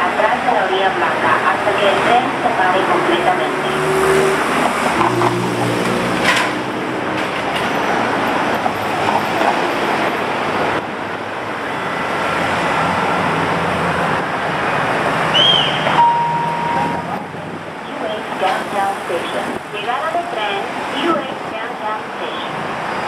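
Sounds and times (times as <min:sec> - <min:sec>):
passing traffic: 0:00.0 - 0:23.0
short steady beep: 0:16.0 - 0:17.2.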